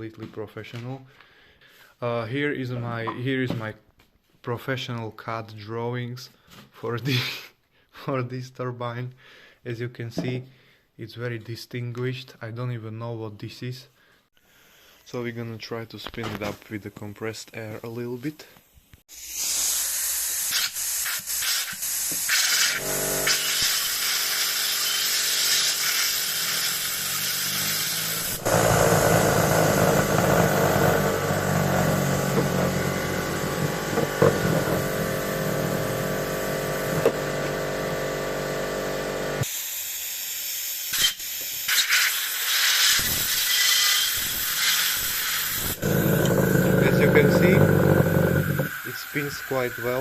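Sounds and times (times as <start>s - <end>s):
compressed air hissing: 19.1s - 37.1s, 39.4s - 50.0s
turbine rotor whining: 26.1s - 39.4s, 45.8s - 48.8s.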